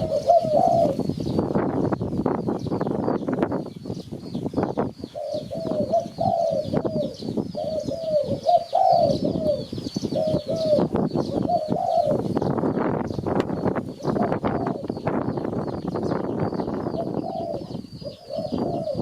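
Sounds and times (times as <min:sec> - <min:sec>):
dove cooing: 0:00.0 - 0:01.6, 0:04.7 - 0:12.9, 0:13.8 - 0:15.2, 0:15.8 - 0:19.0.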